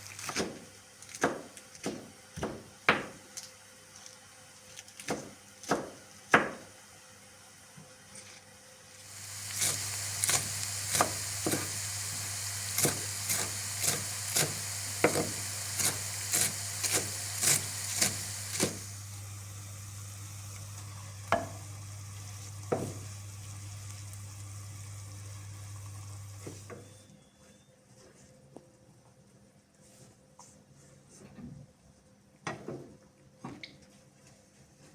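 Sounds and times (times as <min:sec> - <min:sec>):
food sizzling in hot oil: 0:08.9 - 0:27.0.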